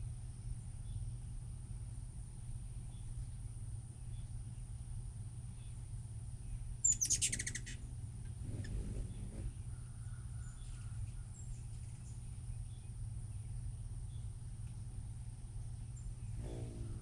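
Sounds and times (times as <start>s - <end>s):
steady low hum: 0.0s - 17.0s
hummingbird chattering call: 6.8s - 10.8s, 16.0s - 17.0s.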